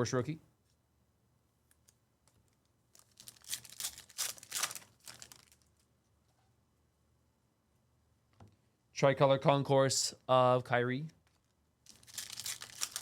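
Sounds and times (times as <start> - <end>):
cards and wrapper rustling: 2.9 - 5.8, 11.2 - 13.0.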